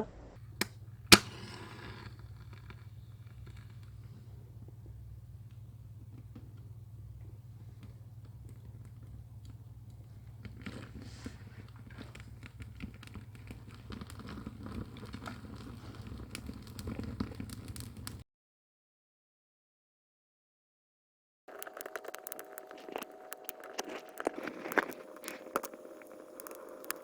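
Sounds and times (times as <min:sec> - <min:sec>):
steady low hum: 0:00.0 - 0:18.2, 0:21.5 - 0:27.0
wood fire crackling and popping: 0:00.4 - 0:18.2, 0:21.5 - 0:27.0.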